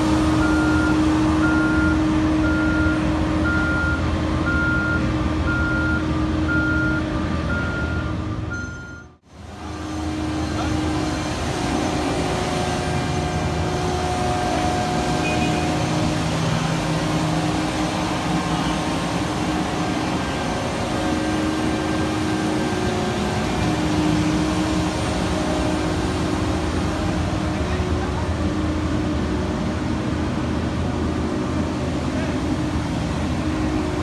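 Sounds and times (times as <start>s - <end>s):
heavy machinery engines droning: 0.0s - 34.0s.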